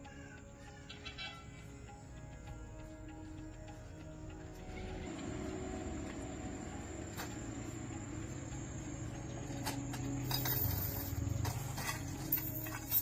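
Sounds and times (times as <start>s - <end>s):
steady low hum: 1.4s - 13.0s
light clinks and taps: 9.5s - 13.0s.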